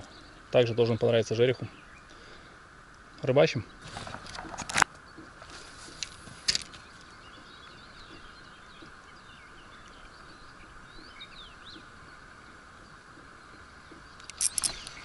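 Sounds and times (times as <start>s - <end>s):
outdoor hiss: 0.0s - 7.4s
small birds chirping: 0.0s - 15.0s.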